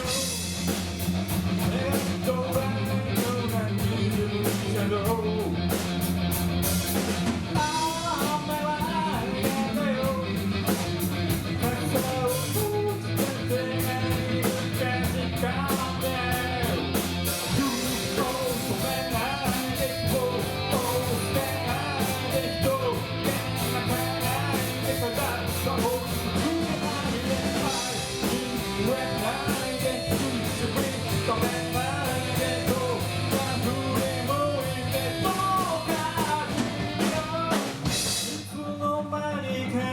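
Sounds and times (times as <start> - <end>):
rock song: 0.0 - 39.9
person singing: 7.6 - 10.8, 11.5 - 39.9.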